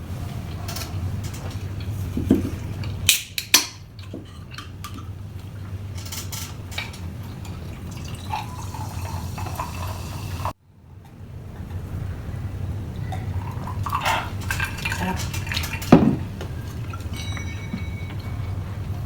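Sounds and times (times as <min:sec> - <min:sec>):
utensils clinking against dish: 0:00.5 - 0:05.2, 0:05.9 - 0:09.9, 0:13.1 - 0:19.0.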